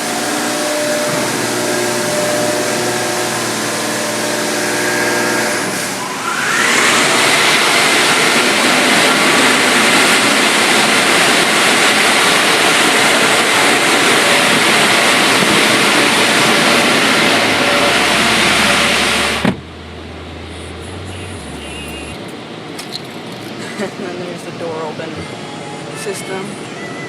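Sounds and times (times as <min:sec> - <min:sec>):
car wash spraying water: 0:00.0 - 0:24.4
low hum: 0:17.9 - 0:23.6.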